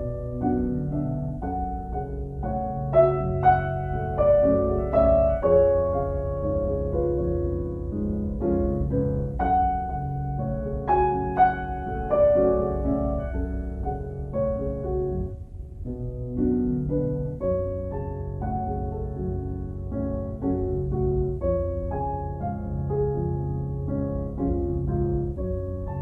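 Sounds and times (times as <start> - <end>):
slow gentle piano music: 0.0 - 26.0.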